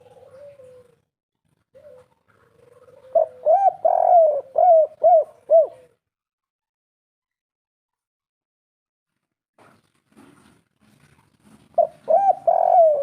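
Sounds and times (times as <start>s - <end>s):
dove cooing: 0.0s - 1.1s, 1.7s - 6.0s, 11.7s - 13.0s.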